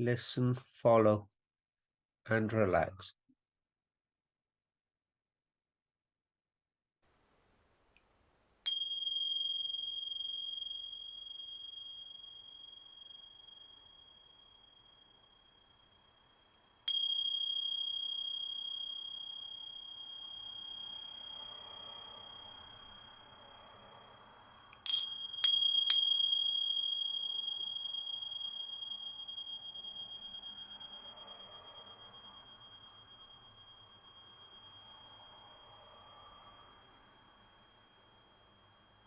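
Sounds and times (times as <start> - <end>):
hand bell-cymbals ringing: 8.7 - 39.0.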